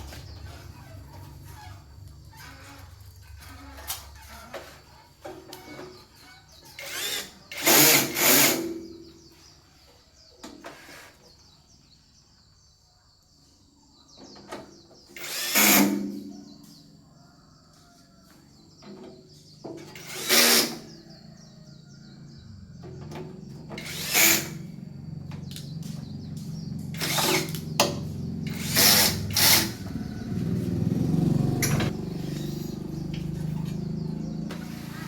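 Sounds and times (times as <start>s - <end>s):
small power tool bursts: 6.7s - 8.8s, 15.1s - 16.3s, 19.9s - 21.0s, 23.8s - 24.8s, 26.8s - 30.0s.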